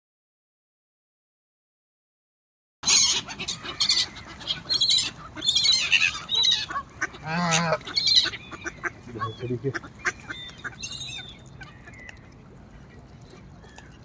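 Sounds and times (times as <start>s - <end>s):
birds calling harshly: 2.8s - 14.0s.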